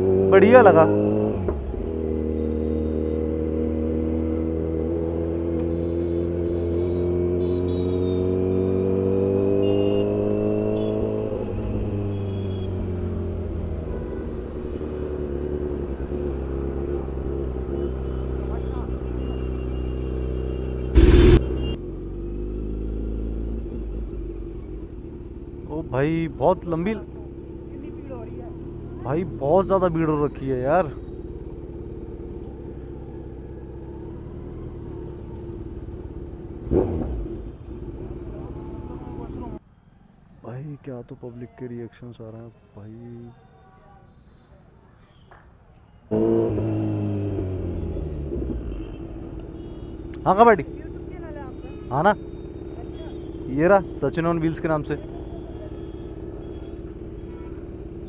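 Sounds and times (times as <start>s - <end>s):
road and wind noise: 0.0s - 30.4s, 31.0s - 40.4s, 45.3s - 58.0s
motorcycle engine droning: 0.9s - 25.6s, 46.1s - 58.0s
motorcycle engine under throttle: 20.6s - 23.6s, 46.1s - 58.0s
loud rumbling burst: 21.0s - 21.8s.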